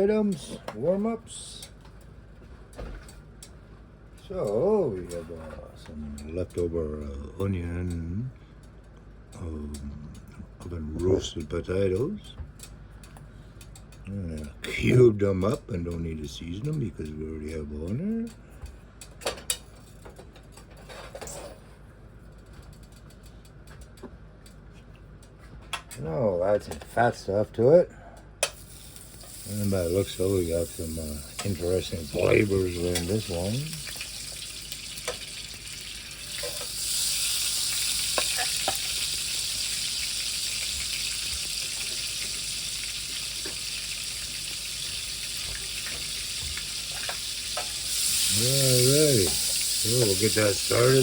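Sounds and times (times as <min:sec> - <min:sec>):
potatoes sizzling in frying pan: 0:28.6 - 0:51.0.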